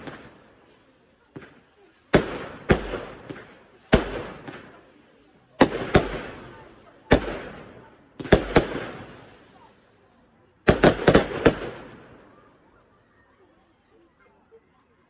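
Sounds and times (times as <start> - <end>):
fireworks banging and crackling: 0.0 - 13.0.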